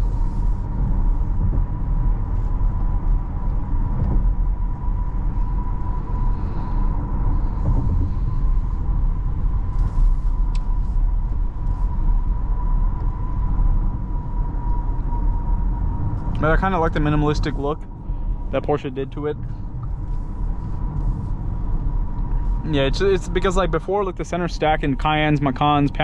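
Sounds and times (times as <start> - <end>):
tyres and engine rumble: 0.0 - 26.0.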